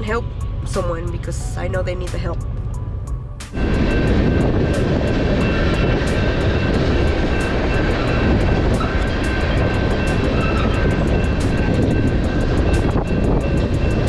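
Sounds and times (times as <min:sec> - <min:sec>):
faint steady tones: 0:00.0 - 0:14.0
road and wind noise: 0:00.0 - 0:14.0
sharp ticks: 0:03.4 - 0:14.0.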